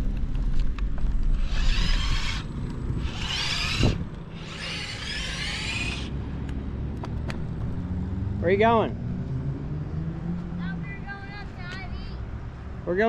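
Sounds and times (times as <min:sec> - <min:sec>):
low rumble of riding: 0:00.0 - 0:13.0
bicycle rasping whirring bursts: 0:01.3 - 0:06.4.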